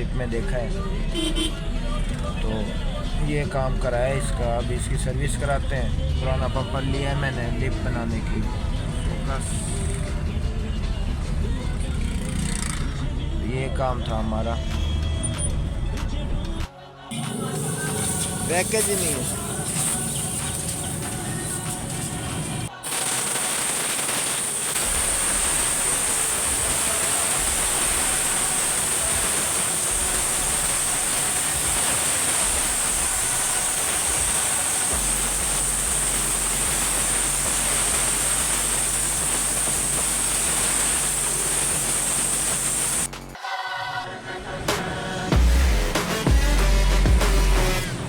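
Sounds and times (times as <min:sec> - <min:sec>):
pressure washer spraying: 0:17.1 - 0:43.3.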